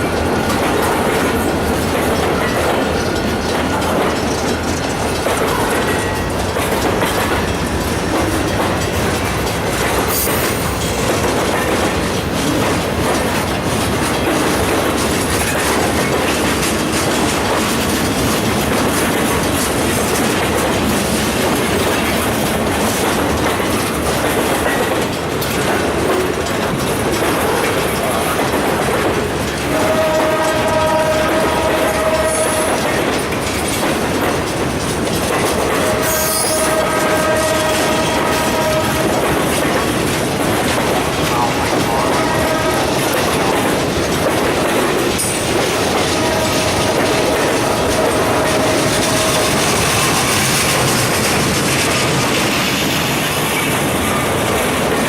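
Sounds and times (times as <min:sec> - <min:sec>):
train wheels clattering on rails: 0:00.0 - 0:55.0
locomotive air horn: 0:29.7 - 0:33.1, 0:35.7 - 0:39.5, 0:41.9 - 0:43.2, 0:46.0 - 0:50.7.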